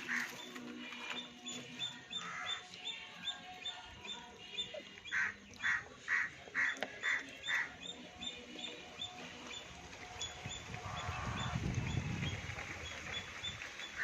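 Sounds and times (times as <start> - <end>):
crow cawing: 2.2 - 2.6, 5.1 - 7.7.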